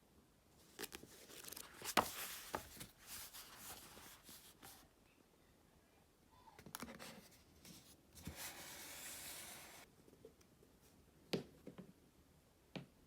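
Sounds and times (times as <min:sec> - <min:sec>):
soft rubbing: 0:00.9 - 0:04.8.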